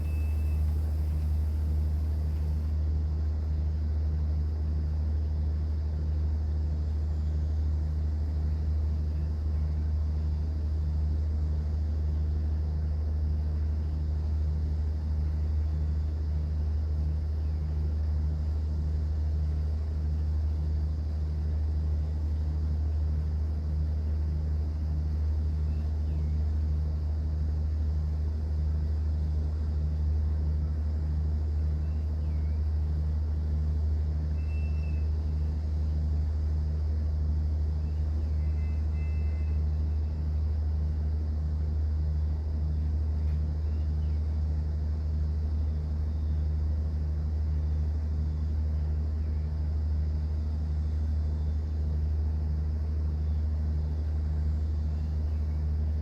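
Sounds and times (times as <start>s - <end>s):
boat engine drone: 0.0s - 4.4s.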